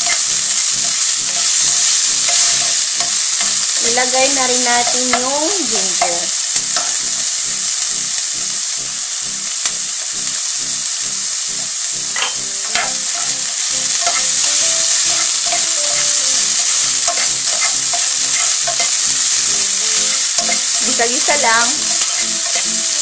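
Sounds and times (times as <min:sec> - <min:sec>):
onion sizzling in hot oil: 0:00.0 - 0:23.0
utensil scraping against pan: 0:12.2 - 0:23.0.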